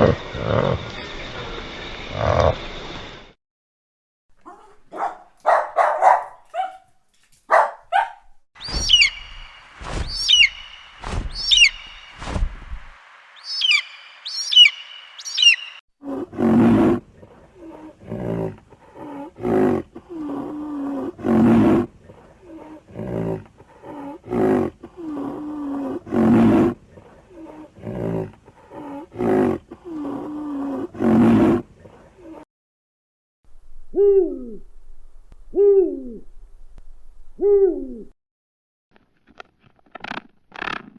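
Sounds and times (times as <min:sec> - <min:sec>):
high sliding animal chirps: 0:08.6 - 0:15.8.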